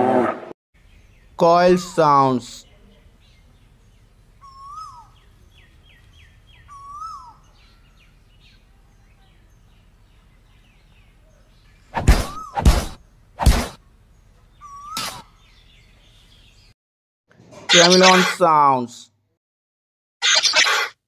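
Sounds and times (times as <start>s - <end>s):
bird chirps: 2.6s - 12.6s, 14.2s - 16.7s, 17.7s - 18.4s
loud sudden thumps: 12.0s - 13.8s
koel calling: 17.7s - 18.5s.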